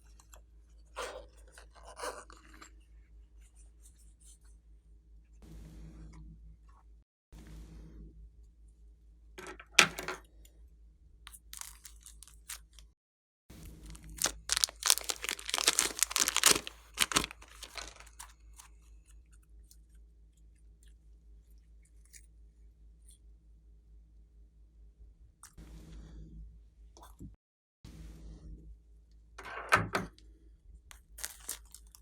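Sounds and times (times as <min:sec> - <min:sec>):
slime crackling and popping: 0:13.6 - 0:18.3, 0:31.2 - 0:32.0.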